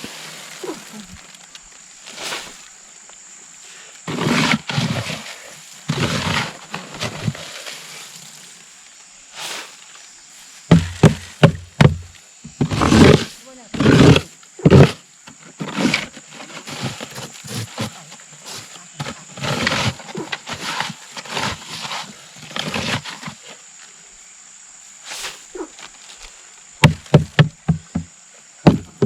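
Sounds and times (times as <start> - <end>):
rustling and handling noises: 0.0 - 15.0
sharp knocks: 10.7 - 12.8, 26.8 - 29.0.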